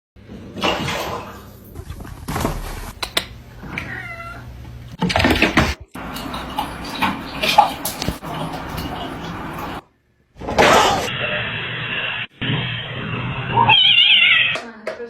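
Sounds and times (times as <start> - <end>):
cat meowing: 3.7 - 4.5, 13.5 - 14.6.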